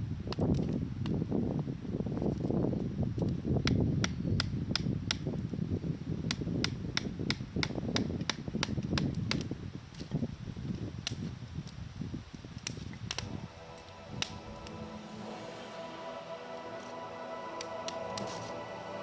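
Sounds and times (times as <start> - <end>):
campfire crackling: 0.0 - 19.0
low rumble: 13.1 - 19.0.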